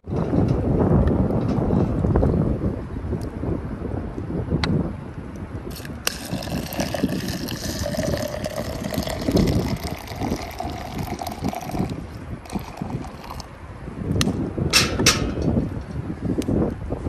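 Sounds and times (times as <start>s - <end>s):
wind buffeting microphone: 0.0s - 17.0s
liquid pouring into container: 5.7s - 13.5s.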